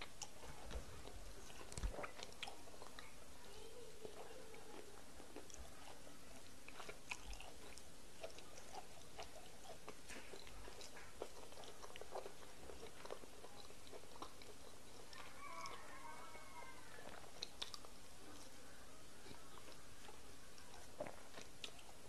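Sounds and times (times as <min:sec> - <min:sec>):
wet chewing and lip-smacking: 0:00.0 - 0:03.3, 0:03.9 - 0:22.0
mouth clicks and squelches: 0:17.0 - 0:18.6.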